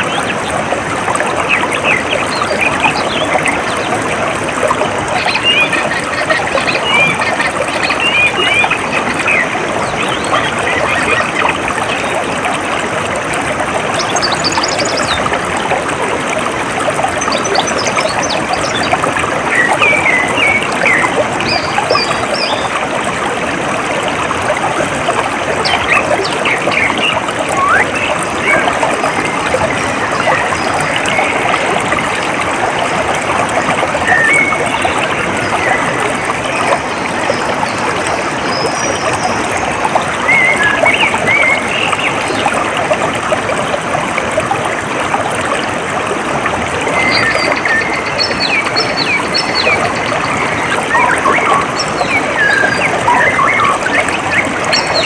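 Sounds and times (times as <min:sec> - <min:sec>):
water trickling: 0:00.0 - 0:55.0
birds chirping: 0:05.0 - 0:12.2, 0:46.9 - 0:55.0.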